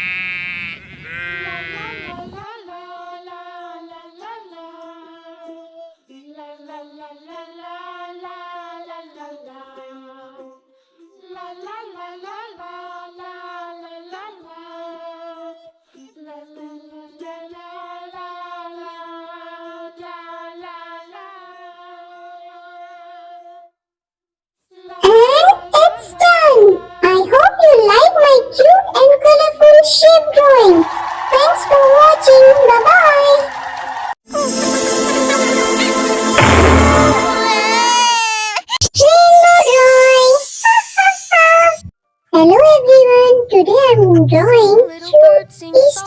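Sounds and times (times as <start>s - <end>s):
child-like voice singing: 24.8s - 33.5s, 37.2s - 41.8s, 42.4s - 46.0s.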